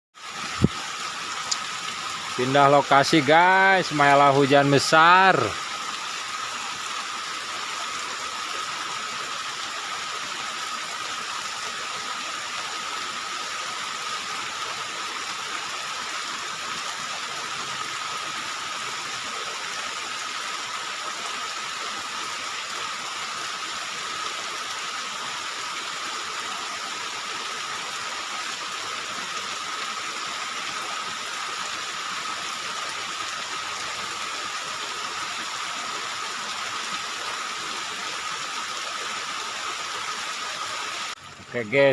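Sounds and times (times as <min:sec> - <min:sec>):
heavy rain hissing: 0:00.2 - 0:41.9.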